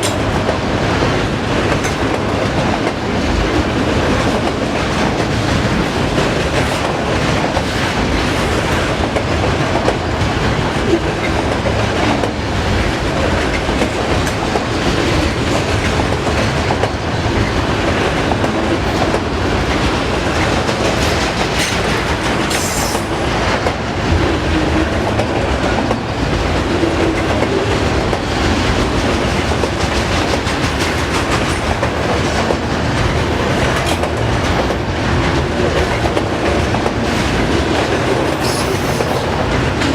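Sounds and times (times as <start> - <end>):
freight train wheels clicking: 0.0 - 39.9
wheels screeching on rail: 20.2 - 23.2.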